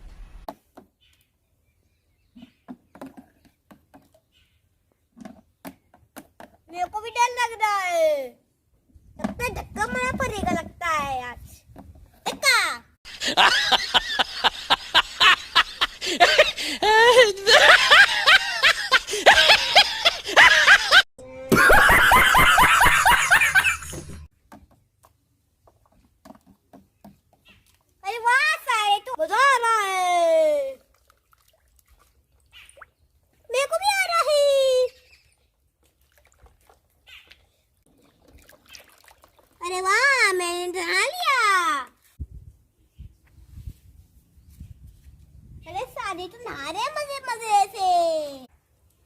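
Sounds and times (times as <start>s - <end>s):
high-pitched cartoon laughter: 13.1s - 24.2s.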